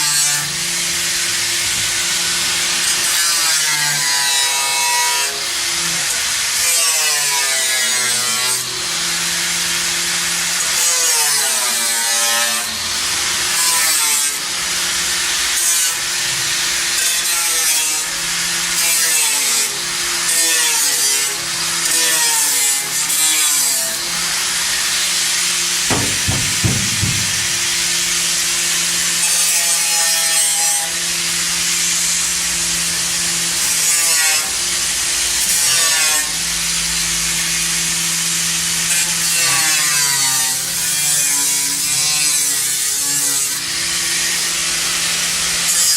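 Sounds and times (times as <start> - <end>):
dull knocks: 25.9 - 27.9
hand saw strokes: 25.9 - 28.0.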